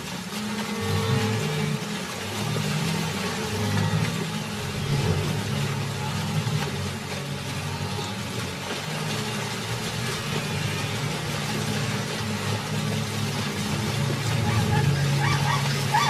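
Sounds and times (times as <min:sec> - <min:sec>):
hooves splashing in water: 0:00.0 - 0:16.0
animals grunting: 0:03.5 - 0:16.0.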